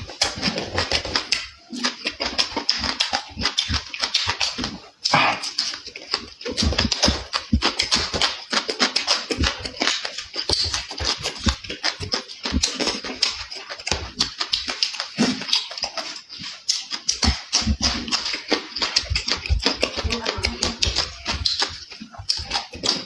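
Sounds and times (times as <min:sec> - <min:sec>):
person chewing and mouth smacking: 0:00.0 - 0:23.0.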